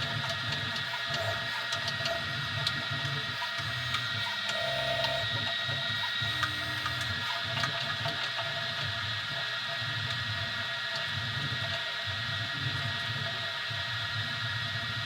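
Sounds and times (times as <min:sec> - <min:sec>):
steady high hum: 0:00.0 - 0:07.9
stepper motors droning: 0:00.1 - 0:07.7.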